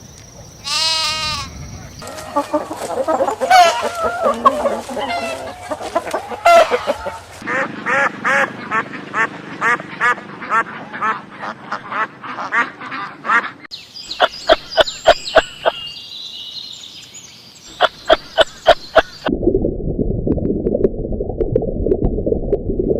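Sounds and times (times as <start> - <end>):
duck quacking: 2.1 - 14.3.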